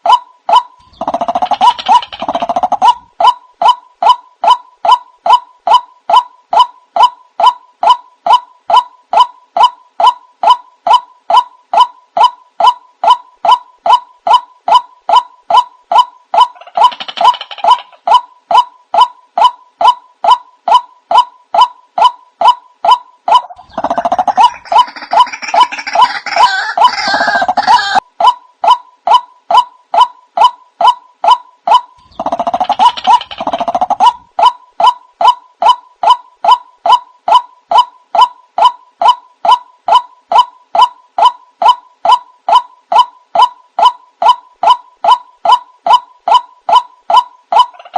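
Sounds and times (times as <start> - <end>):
harsh noisy bird calling: 0.0 - 28.0
waterhen calls: 23.3 - 28.0.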